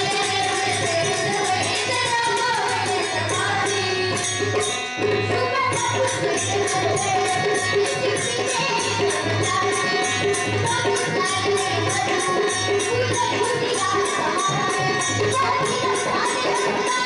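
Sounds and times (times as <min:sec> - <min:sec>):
girls singing in unison: 0:00.0 - 0:04.2, 0:05.3 - 0:17.0
jingling percussion beat: 0:00.0 - 0:17.0.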